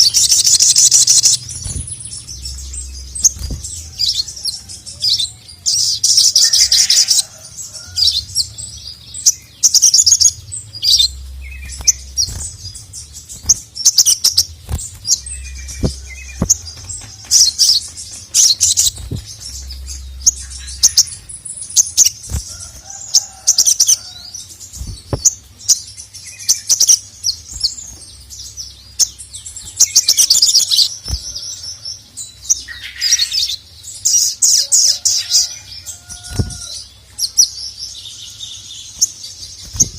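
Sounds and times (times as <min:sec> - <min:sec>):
bird chattering and chirping: 0:00.0 - 0:39.9.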